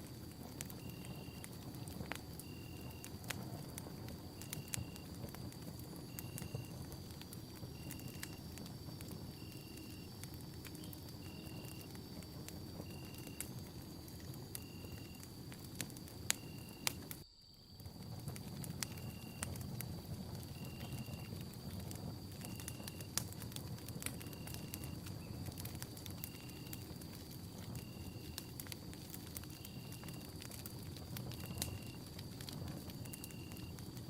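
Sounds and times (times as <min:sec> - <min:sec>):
campfire crackling and popping: 0:00.0 - 0:34.0
faint high whine: 0:10.7 - 0:19.6.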